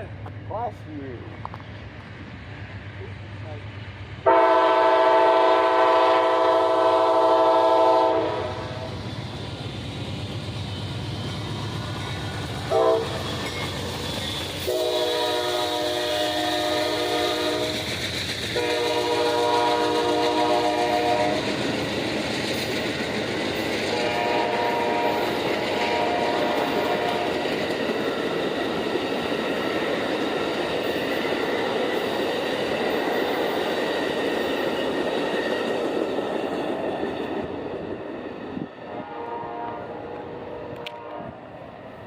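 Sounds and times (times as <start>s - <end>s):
train rumbling: 0.0s - 42.0s
locomotive horn blasts: 4.3s - 8.8s, 12.7s - 13.2s, 14.6s - 17.7s, 18.6s - 21.4s, 23.9s - 27.4s, 38.9s - 41.4s.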